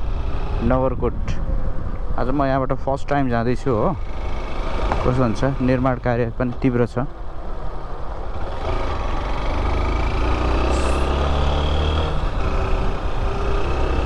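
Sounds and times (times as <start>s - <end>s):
wind and road noise: 0.0s - 14.0s
motorcycle engine running: 3.9s - 6.4s, 7.1s - 14.0s.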